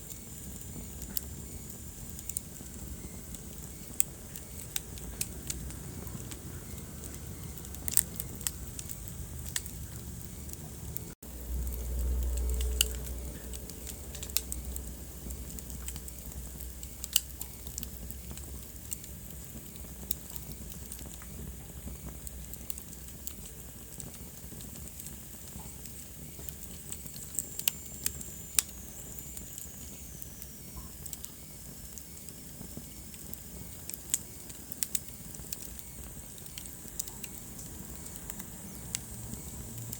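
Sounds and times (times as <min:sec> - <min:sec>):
steady hiss: 0:00.0 - 0:39.9
wood fire crackling and popping: 0:00.0 - 0:39.9
low rumble: 0:05.1 - 0:16.8.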